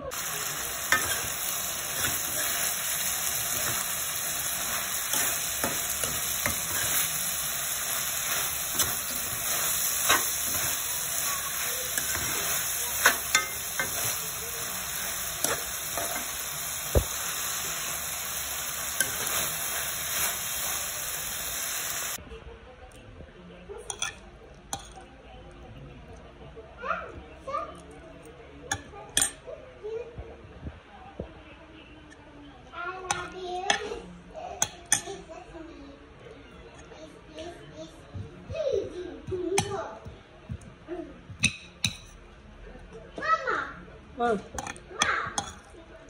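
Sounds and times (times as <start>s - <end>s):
food sizzling in a wok: 0.0s - 22.2s
spatula scraping and knocking pan: 3.4s - 17.2s.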